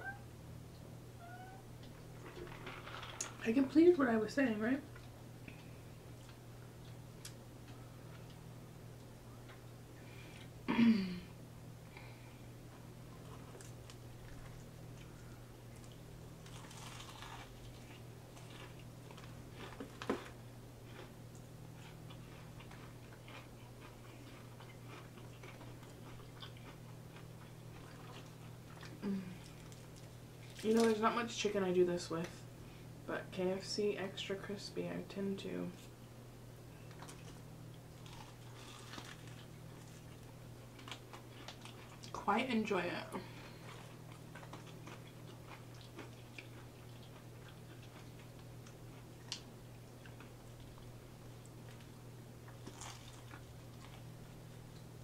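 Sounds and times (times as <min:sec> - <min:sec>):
low electrical hum: 0:00.0 - 0:55.0
chewing crispy food: 0:13.2 - 0:31.1, 0:36.9 - 0:42.2, 0:43.2 - 0:55.0.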